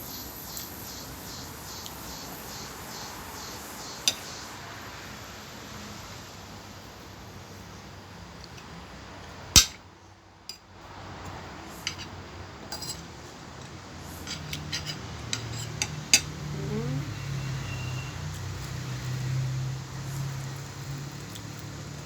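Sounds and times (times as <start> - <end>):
cutlery clinking on a plate: 11.8 - 16.4.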